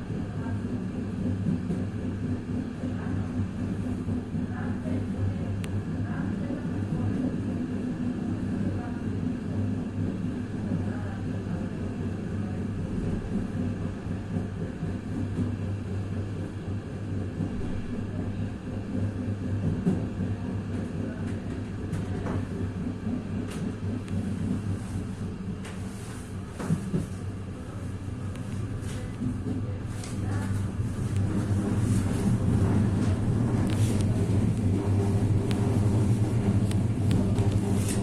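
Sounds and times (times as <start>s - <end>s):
wheels rumbling on rails: 13.0s - 38.0s.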